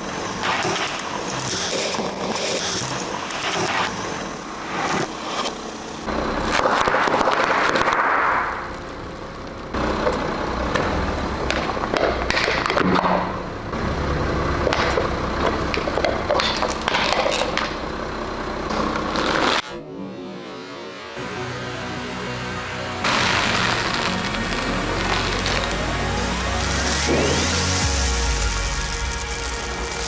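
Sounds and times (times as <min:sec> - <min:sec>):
tyre and engine rumble: 0:00.0 - 0:30.0
tyres crunching objects: 0:23.0 - 0:30.0.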